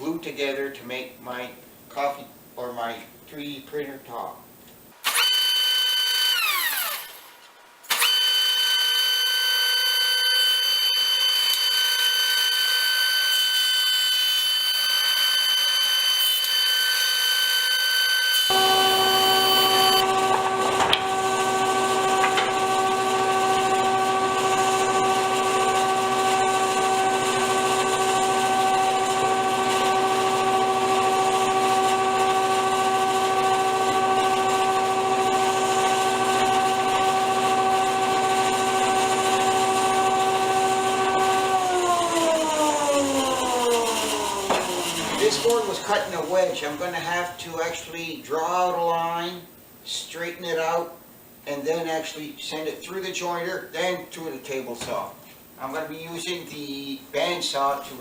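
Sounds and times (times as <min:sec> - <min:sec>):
jointer motor whining: 0:05.0 - 0:46.9.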